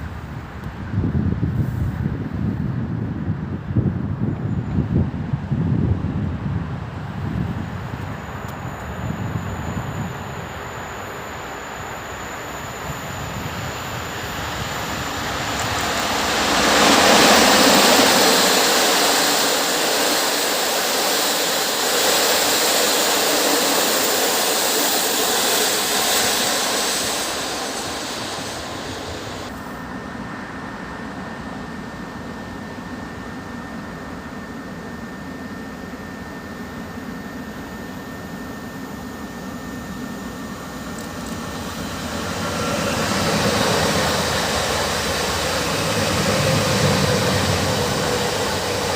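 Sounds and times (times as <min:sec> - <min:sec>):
faint high whine: 0:00.0 - 0:48.9
train wheels rushing on rails: 0:11.6 - 0:29.5, 0:40.9 - 0:48.9.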